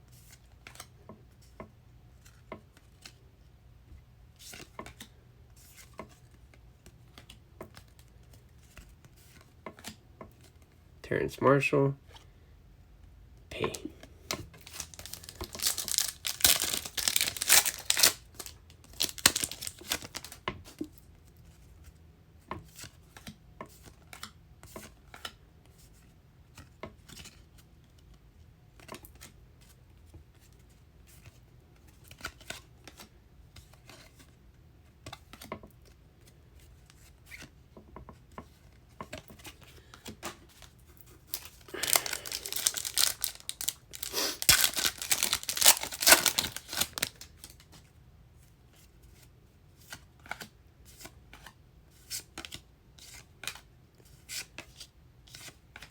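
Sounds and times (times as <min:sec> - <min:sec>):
card pack wrappers tearing: 0:14.6 - 0:20.4, 0:40.5 - 0:47.6
cards clicking as flipped: 0:14.7 - 0:20.4.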